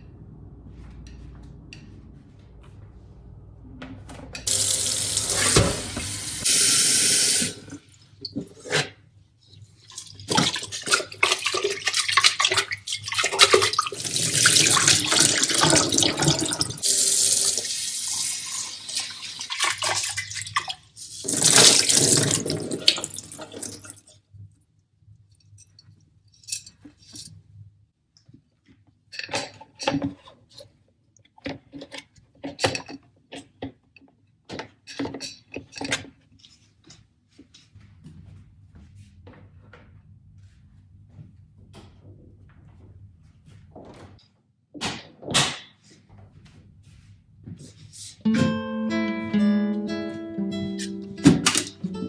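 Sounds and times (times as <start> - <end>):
tap water running into sink: 4.4 - 8.4, 9.8 - 24.0, 51.2 - 51.8
water splashing: 9.8 - 24.0.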